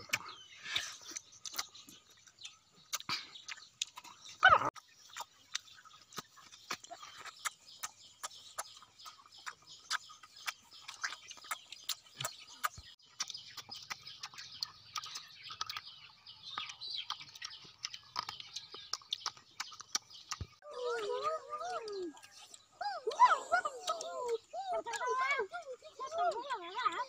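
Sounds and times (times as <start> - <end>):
crunchy biting and chewing: 0.0 - 20.6
bird calls: 0.0 - 27.0.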